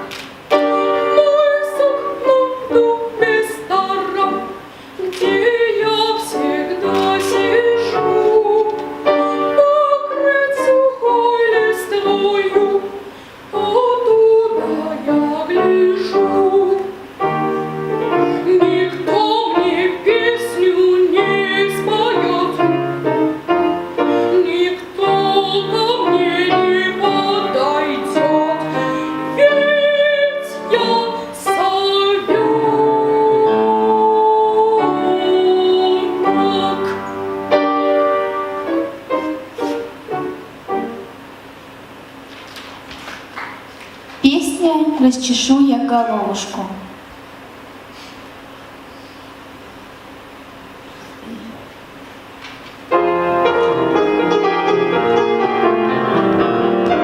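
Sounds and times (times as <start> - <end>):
woman singing classical style: 0.0 - 40.5
piano: 0.0 - 57.0.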